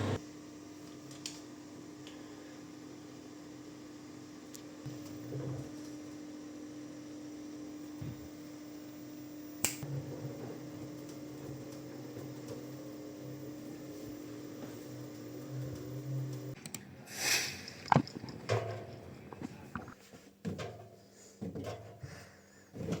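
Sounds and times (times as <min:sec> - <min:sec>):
washing machine drain pump humming: 0:00.0 - 0:16.6.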